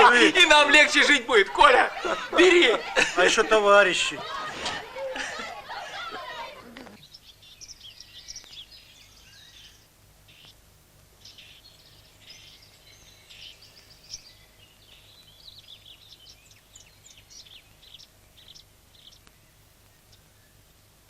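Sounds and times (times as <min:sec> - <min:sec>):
faint birdsong chirps: 0:00.0 - 0:21.0.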